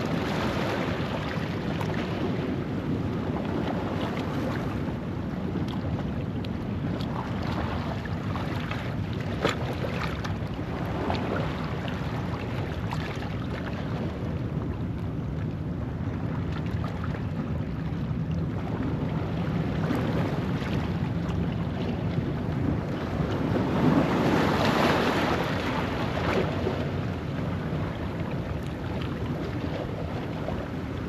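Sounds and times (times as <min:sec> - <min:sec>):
wind buffeting microphone: 0:00.0 - 0:31.0
waves washing over rocks: 0:22.8 - 0:31.0.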